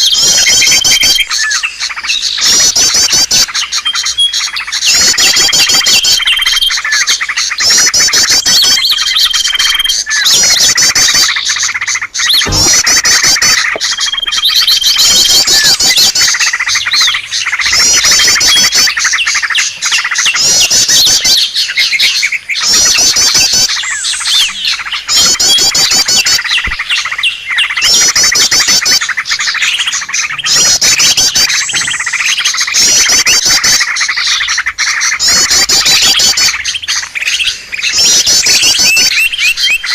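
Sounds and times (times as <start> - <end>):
bird whistles: 0.0 - 39.9
small birds chirping and trilling: 0.0 - 39.9.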